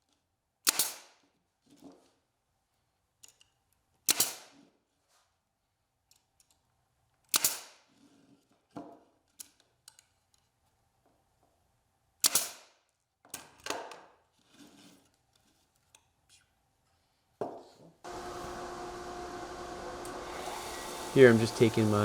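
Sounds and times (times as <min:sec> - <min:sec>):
nail gun shots into wood: 0:00.6 - 0:01.1, 0:04.1 - 0:04.5, 0:07.3 - 0:07.8, 0:12.2 - 0:12.7.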